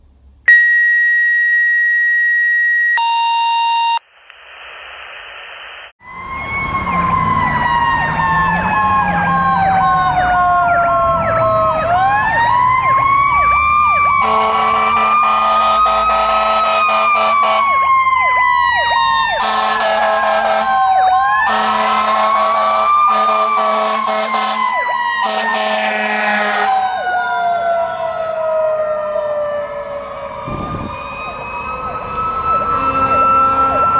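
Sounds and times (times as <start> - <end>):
electronic yelp siren: 0.5 - 4.0, 6.0 - 33.9
wailing siren: 0.5 - 4.0, 6.0 - 33.9
air horn blasts: 14.2 - 17.7, 19.4 - 20.7, 21.5 - 26.8, 32.7 - 33.9.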